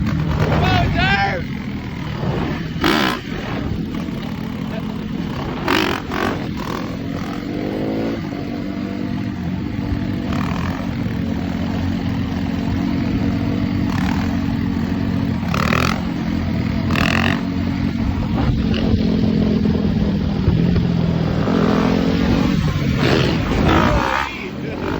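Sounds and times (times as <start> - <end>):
dirt bike engines running: 0.0 - 24.9.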